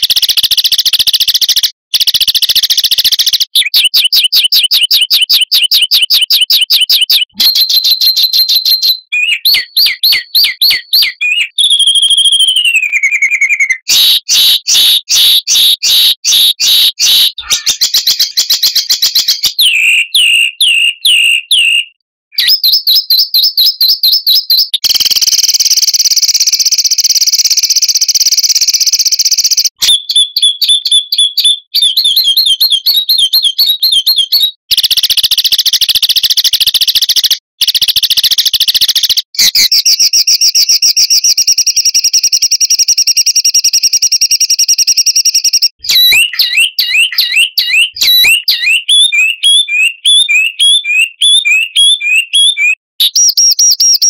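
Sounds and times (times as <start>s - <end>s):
long buzzy bird trill: 7.2s - 22.7s, 45.7s - 52.8s.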